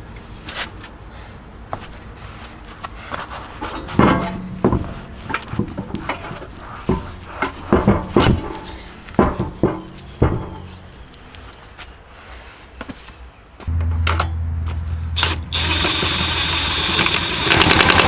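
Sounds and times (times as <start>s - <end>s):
knocks and clatters: 3.2s - 11.3s
steady low hum: 13.6s - 18.0s.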